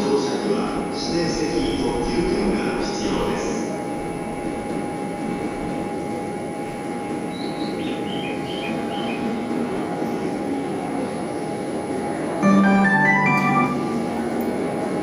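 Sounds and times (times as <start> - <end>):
electric train rumbling: 0.0 - 15.0
high beeping notes: 12.4 - 14.2.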